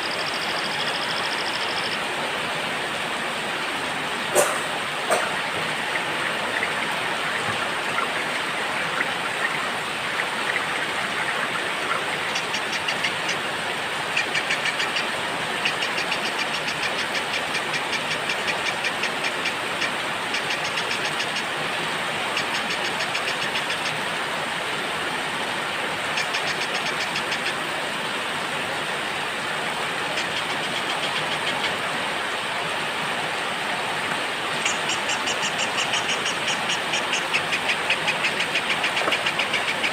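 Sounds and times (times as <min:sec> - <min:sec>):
heavy rain: 0:01.4 - 0:22.5.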